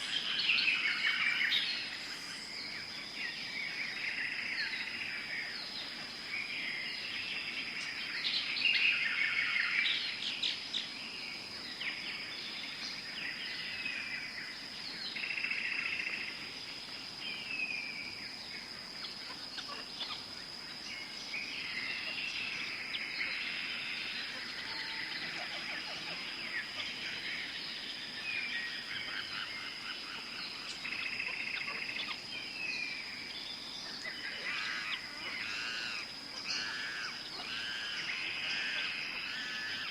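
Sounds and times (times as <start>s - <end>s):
birds chirping and calling: 18.6s - 39.9s.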